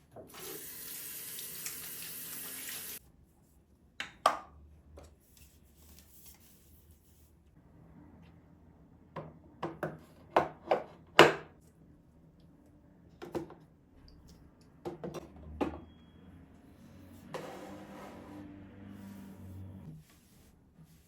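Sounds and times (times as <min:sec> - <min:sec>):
knocks of household items: 0:09.6 - 0:11.5.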